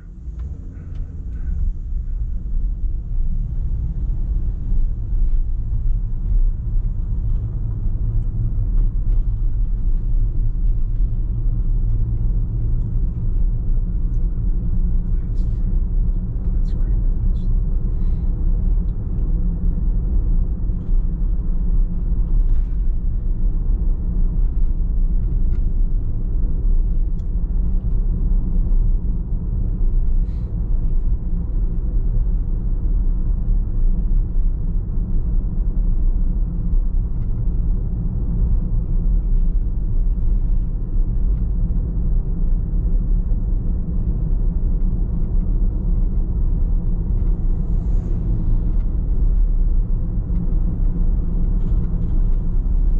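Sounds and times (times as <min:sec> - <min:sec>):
car driving rumble: 0:00.0 - 0:52.9
faint light ticks: 0:27.0 - 0:27.4.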